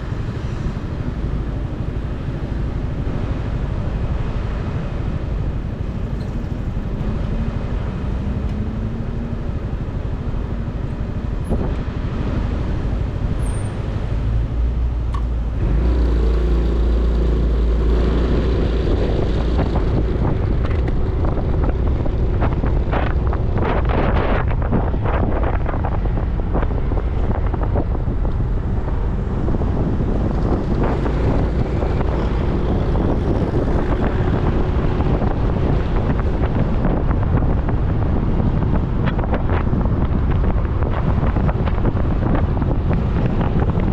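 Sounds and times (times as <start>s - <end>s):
road noise: 0.0s - 43.9s
wind rush over microphone: 0.0s - 43.9s
motorcycle engine running: 3.6s - 8.4s.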